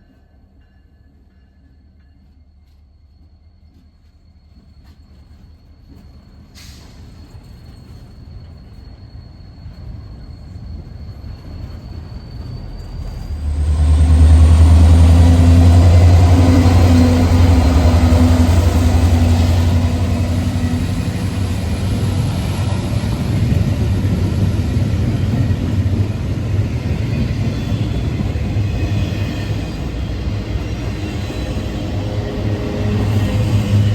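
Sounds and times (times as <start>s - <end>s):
diesel locomotive engine drone: 3.0s - 33.9s
freight cars rumbling past: 13.0s - 33.9s.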